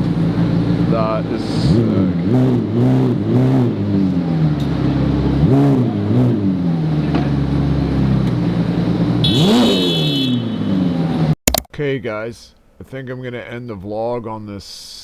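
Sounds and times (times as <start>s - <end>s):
car engine idling and revving: 0.0s - 11.4s.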